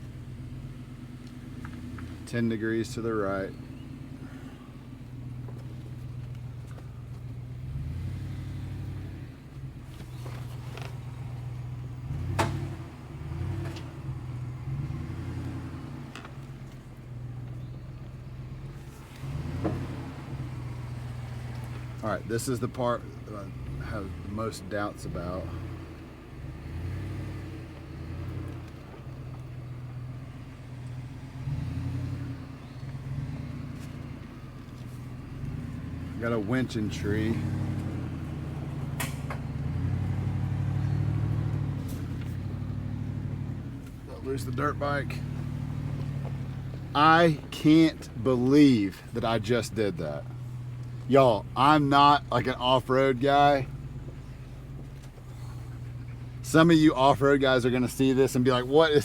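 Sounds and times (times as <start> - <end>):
truck engine at low revs: 0.0 - 59.0
truck knocks and clunks: 0.0 - 59.0.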